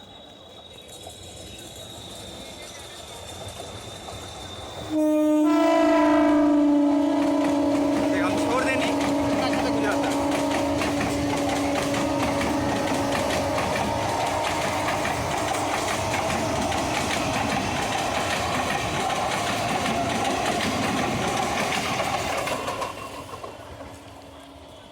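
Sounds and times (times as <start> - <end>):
electric train passing: 0.0 - 24.9
wheels clattering over rail joints: 7.1 - 24.8.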